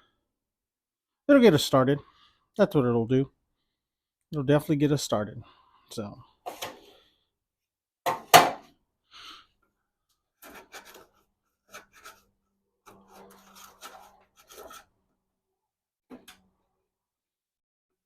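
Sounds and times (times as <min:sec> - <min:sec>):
objects being handled: 0:10.4 - 0:15.0.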